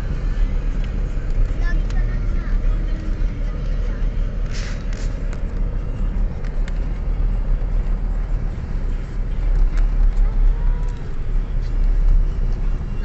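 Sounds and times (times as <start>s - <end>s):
brief hiss: 4.5s - 5.2s.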